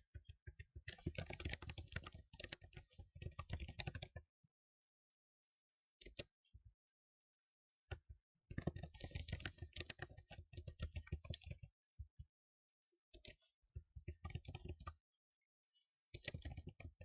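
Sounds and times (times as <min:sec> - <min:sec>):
typing on computer keyboard: 0:00.9 - 0:04.2, 0:07.9 - 0:11.7, 0:14.0 - 0:15.0, 0:16.2 - 0:17.0.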